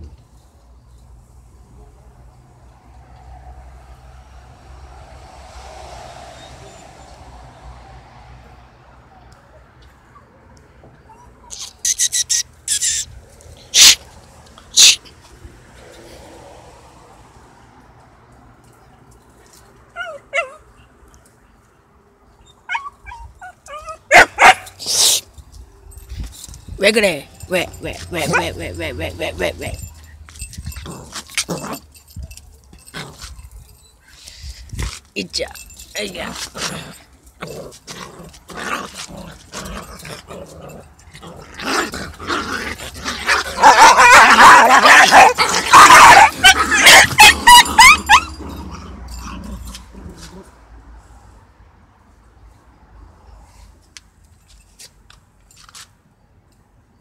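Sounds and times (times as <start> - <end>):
dogs yipping and yelping: 11.0 - 14.1, 14.8 - 15.0, 19.8 - 21.0, 22.3 - 25.3, 27.7 - 34.4, 36.5 - 50.4
dog barking loudly: 13.7 - 14.0, 24.1 - 24.8, 28.1 - 28.8, 42.8 - 48.4
dog snarling: 36.4 - 50.4.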